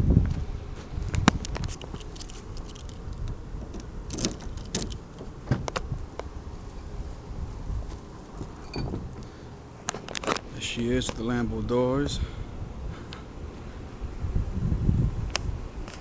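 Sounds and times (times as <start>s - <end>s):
sharp clicks and light knocks: 1.1s - 6.3s.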